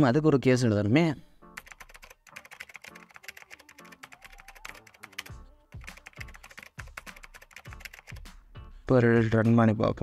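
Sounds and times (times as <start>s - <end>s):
quiet background music: 0.0s - 10.0s
fast typing on keyboard: 1.6s - 8.3s.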